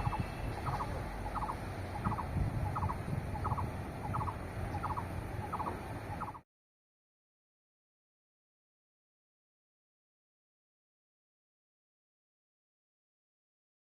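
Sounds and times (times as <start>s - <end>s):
bird rattling call: 0.0s - 6.4s.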